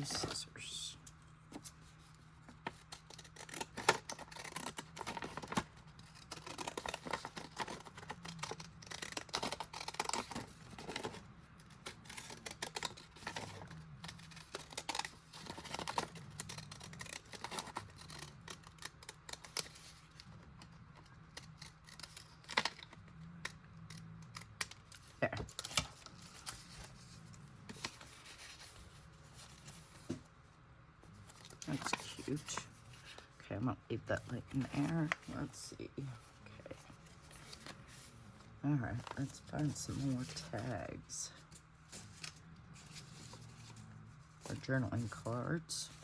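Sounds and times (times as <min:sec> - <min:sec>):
scissors snipping paper: 0:02.5 - 0:26.8.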